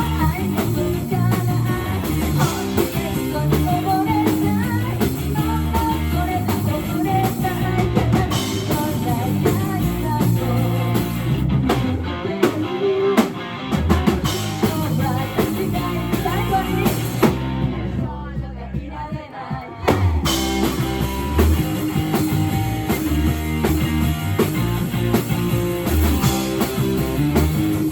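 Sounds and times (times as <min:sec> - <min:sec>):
person singing: 0:00.0 - 0:11.0, 0:11.7 - 0:13.5, 0:14.4 - 0:17.3
electric guitar: 0:00.0 - 0:18.1, 0:19.9 - 0:27.9
drum kit: 0:00.0 - 0:27.9.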